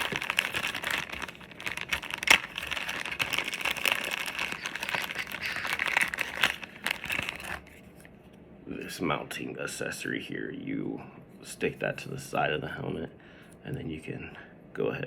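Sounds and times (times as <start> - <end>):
packaging crinkling: 0.0 - 8.1.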